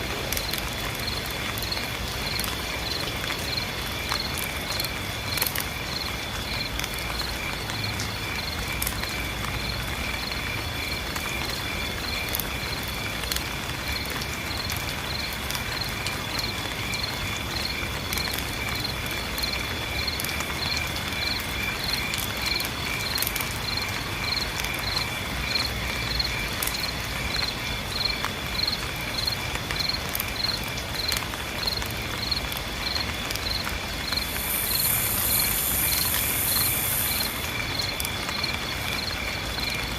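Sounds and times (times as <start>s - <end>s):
rain hissing: 0.0s - 39.9s
insects chirping: 0.3s - 39.9s
high-pitched insect buzz: 34.2s - 37.4s.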